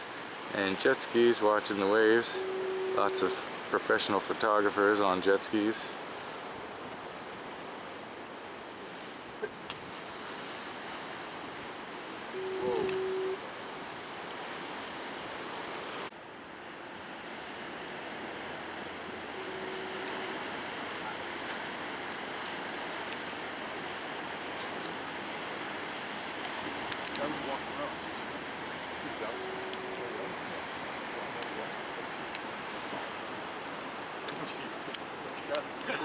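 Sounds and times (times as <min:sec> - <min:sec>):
heavy ocean surf: 0:00.0 - 0:36.0
horn steady note: 0:01.6 - 0:03.6, 0:12.3 - 0:13.4, 0:18.9 - 0:21.3, 0:27.2 - 0:30.8
wind on microphone: 0:12.4 - 0:13.5.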